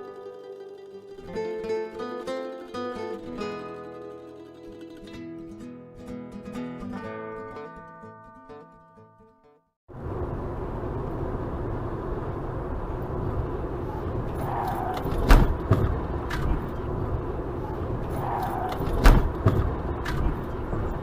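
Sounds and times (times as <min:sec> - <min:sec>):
car engine and road rumble: 0:09.9 - 0:21.0
sharp thumps: 0:14.6 - 0:16.8, 0:18.0 - 0:20.6.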